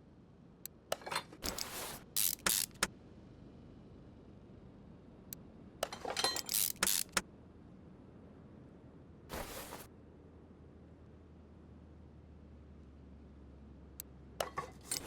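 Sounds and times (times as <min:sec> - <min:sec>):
small hard objects clinking: 0:05.8 - 0:07.2.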